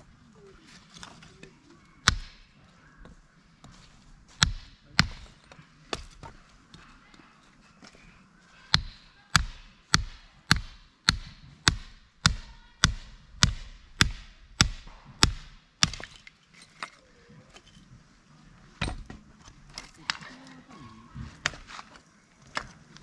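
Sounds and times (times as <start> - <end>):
axe chopping firewood: 2.0 - 2.6, 3.6 - 6.5, 8.7 - 16.4, 21.3 - 22.9.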